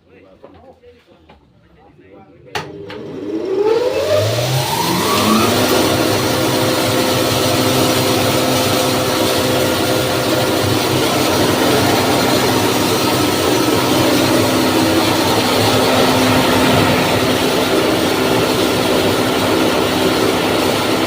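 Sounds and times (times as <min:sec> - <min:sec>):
hammer mill mechanical drone: 0:03.2 - 0:21.0
constant hum: 0:09.8 - 0:21.0.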